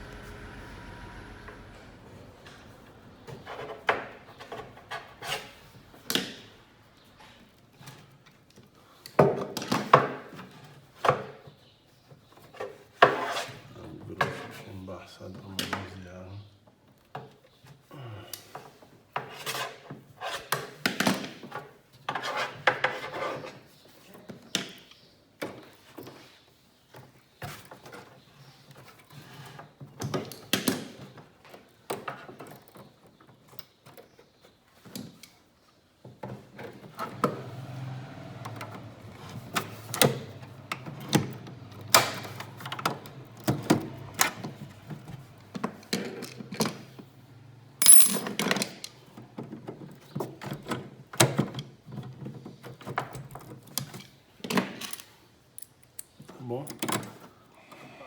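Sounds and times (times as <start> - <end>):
steady low hum: 0.0 - 4.8.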